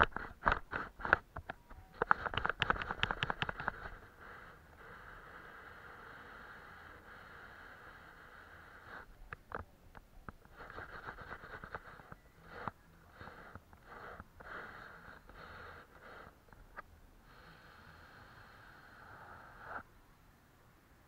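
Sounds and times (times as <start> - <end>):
sharp little clicks: 0.0 - 4.1
faint steady hiss: 0.0 - 21.0.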